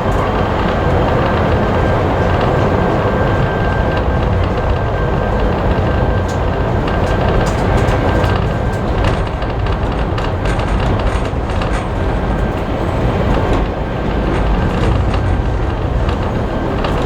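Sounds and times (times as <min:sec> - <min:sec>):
railway carriage rumbling on track: 0:00.0 - 0:17.0
wheels clicking and rattling: 0:00.0 - 0:17.0.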